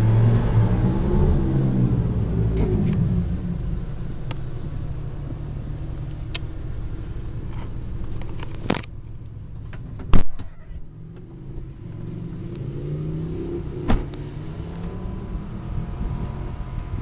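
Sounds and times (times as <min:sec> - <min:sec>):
pickup engine running: 0:00.0 - 0:17.0
loud thump: 0:13.7 - 0:14.8.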